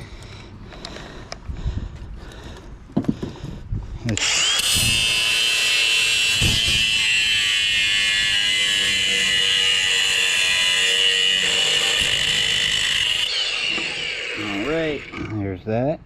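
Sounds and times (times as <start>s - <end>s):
power tool high-pitched whine: 4.2s - 15.4s.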